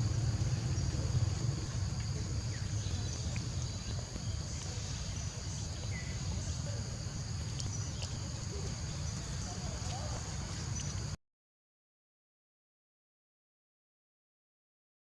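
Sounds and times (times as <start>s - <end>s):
low rumble: 0.0s - 5.6s
insects droning: 0.0s - 11.2s.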